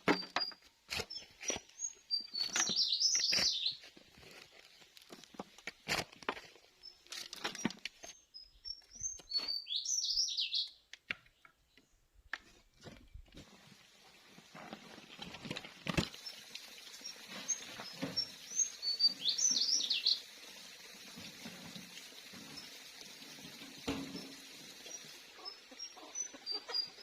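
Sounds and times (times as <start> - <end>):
songbird singing: 0.1 - 3.8, 6.8 - 12.1, 16.2 - 20.3.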